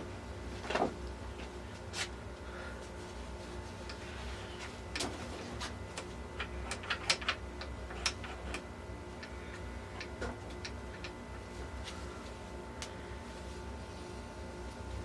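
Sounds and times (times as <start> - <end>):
gearbox parts clicking and tapping: 6.4 - 9.3.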